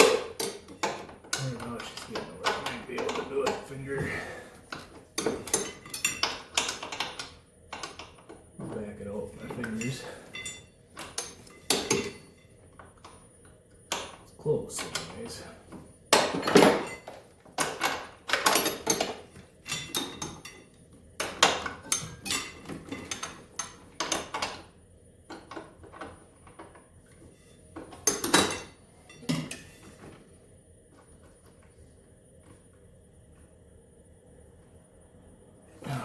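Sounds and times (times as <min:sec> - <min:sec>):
metal tools clinking and clattering: 0:00.0 - 0:03.8, 0:04.7 - 0:08.2, 0:09.4 - 0:13.2, 0:16.2 - 0:24.6, 0:27.8 - 0:29.9.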